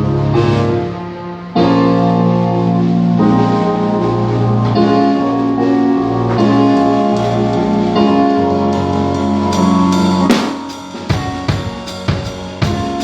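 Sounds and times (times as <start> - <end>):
keyboard and guitar chords: 0.0 - 13.0
sharp hit: 9.5 - 13.0.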